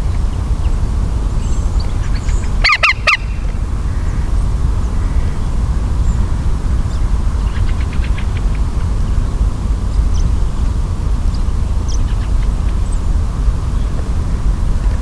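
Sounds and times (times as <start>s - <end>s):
steady low rumble: 0.0s - 15.0s
woodpecker harsh calls: 1.4s - 9.2s.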